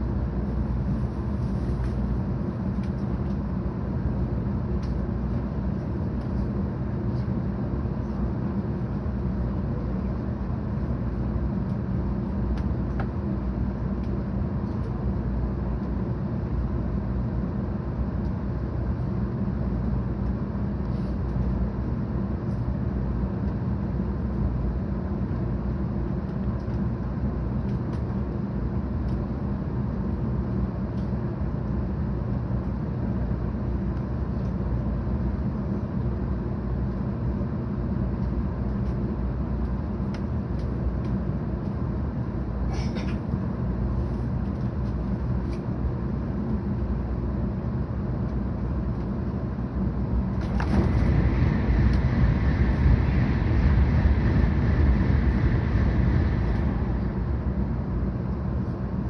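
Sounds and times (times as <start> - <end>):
train cabin rumble: 40.0 - 45.8, 48.5 - 59.0.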